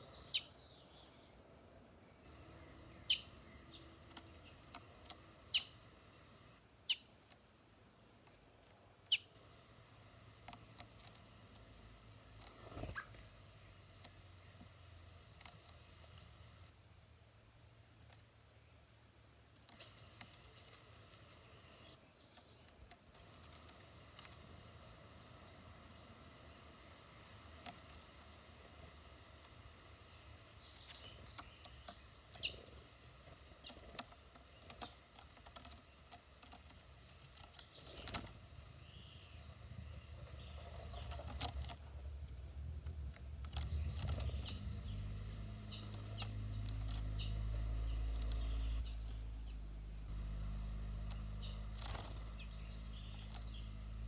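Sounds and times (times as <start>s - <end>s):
quiet forest background noise: 0.0s - 54.0s
small birds chirping: 0.0s - 54.0s
low rumble: 41.8s - 51.6s.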